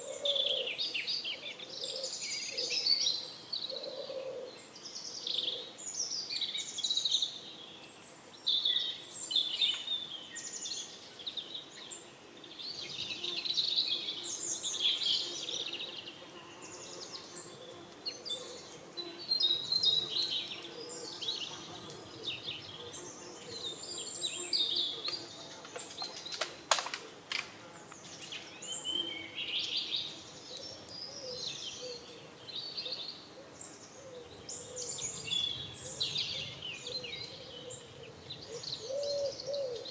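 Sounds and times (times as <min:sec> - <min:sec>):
small birds chirping: 0:00.0 - 0:26.6, 0:27.9 - 0:39.9.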